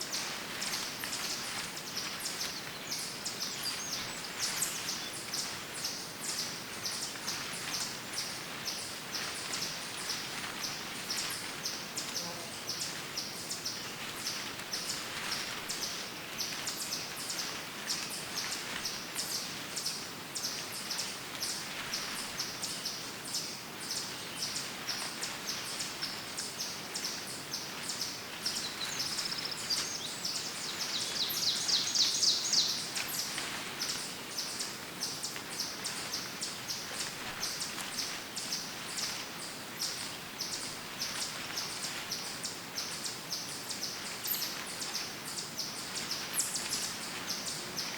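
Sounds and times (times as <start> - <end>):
bird chirping: 27.0 - 34.6.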